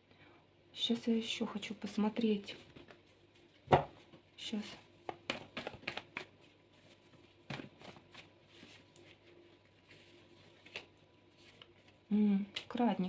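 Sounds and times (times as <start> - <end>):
cards tapping and clicking: 5.1 - 6.4.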